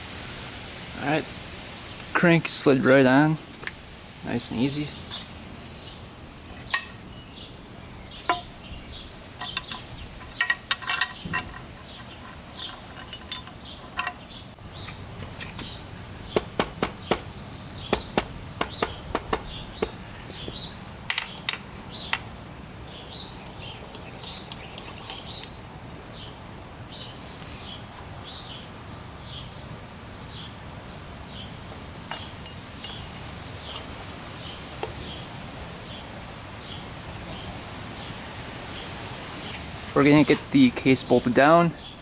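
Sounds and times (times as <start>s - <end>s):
birds chirping: 4.2s - 42.0s
metal tools clinking: 9.4s - 16.0s, 32.1s - 33.8s.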